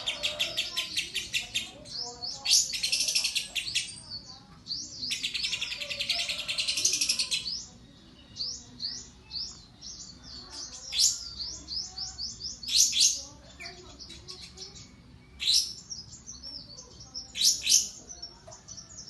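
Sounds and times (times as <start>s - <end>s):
bird chattering trills: 0.0s - 19.0s.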